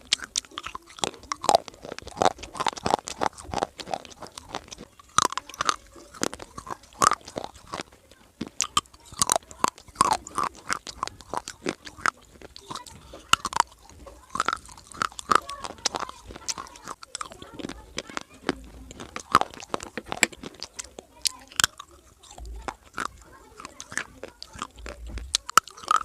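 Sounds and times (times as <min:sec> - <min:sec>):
person chewing crunchy clay: 0:00.0 - 0:26.0.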